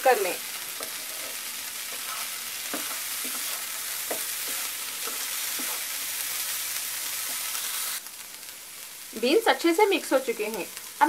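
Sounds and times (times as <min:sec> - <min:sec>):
beans sizzling in a frying pan: 0:00.0 - 0:11.0
spatula scraping a pan: 0:00.7 - 0:08.0.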